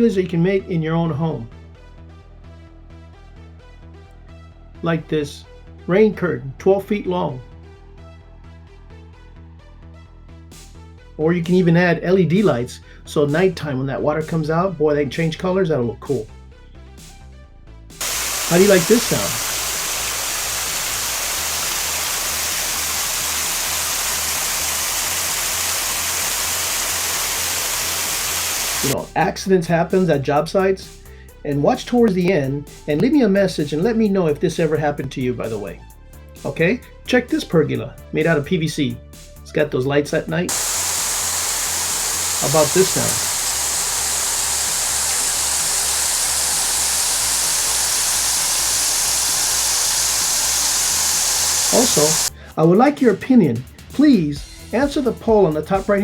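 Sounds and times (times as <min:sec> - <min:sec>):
water pouring and splashing: 0:18.0 - 0:29.0, 0:40.5 - 0:52.3.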